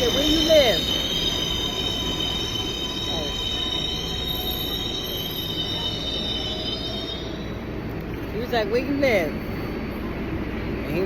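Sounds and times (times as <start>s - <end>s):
subway car rumble: 0.0s - 11.0s
train wheels squealing on rails: 0.0s - 11.0s.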